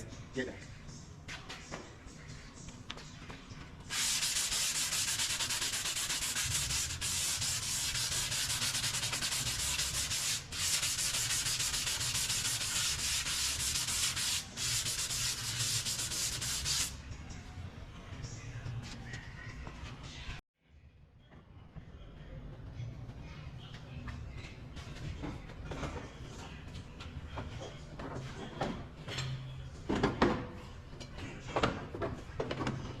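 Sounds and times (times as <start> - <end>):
sanding body filler: 3.9 - 16.9.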